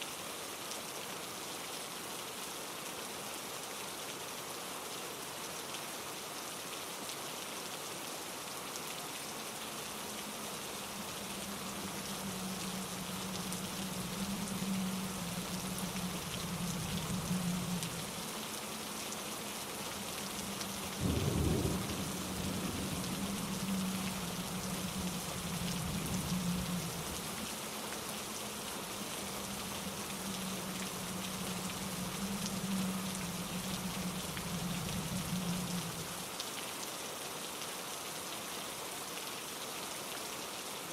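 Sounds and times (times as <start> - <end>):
rain hiss: 0.0 - 40.9
low thunder rumbling: 10.2 - 18.2, 20.0 - 27.5, 29.0 - 36.1.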